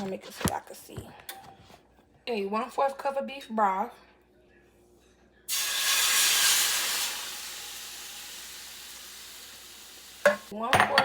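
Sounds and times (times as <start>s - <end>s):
broth hissing in hot pan: 5.5s - 10.5s.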